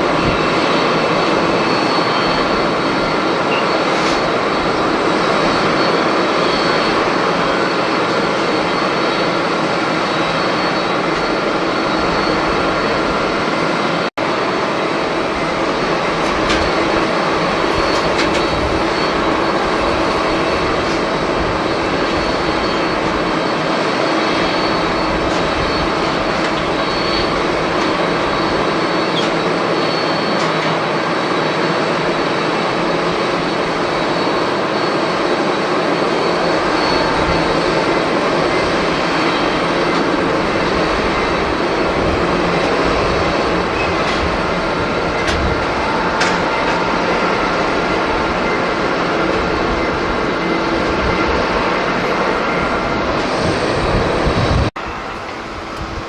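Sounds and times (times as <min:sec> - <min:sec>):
jet engines running: 0:00.0 - 0:56.0
wind on microphone: 0:33.2 - 0:56.0.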